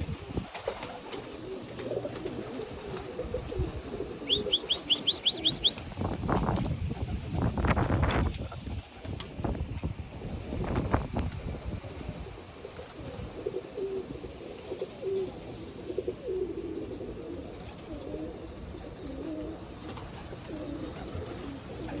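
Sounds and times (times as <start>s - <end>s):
pigeons cooing: 0.0s - 9.1s, 11.7s - 22.0s
wind rumble on microphone: 0.0s - 14.2s.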